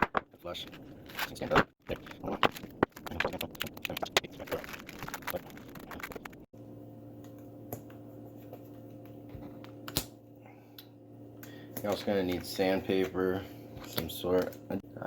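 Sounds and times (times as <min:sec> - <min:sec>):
steady low hum: 0:00.0 - 0:15.0
wax paper crinkling and clicking: 0:01.1 - 0:06.5.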